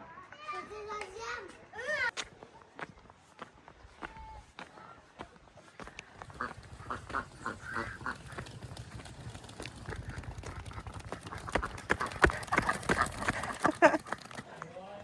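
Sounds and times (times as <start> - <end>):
ducks quacking: 6.1 - 14.3.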